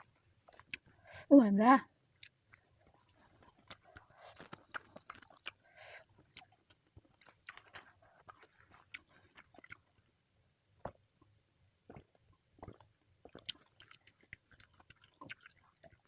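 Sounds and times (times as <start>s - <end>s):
person chewing: 0.4s - 1.1s, 2.2s - 10.0s, 11.9s - 16.0s.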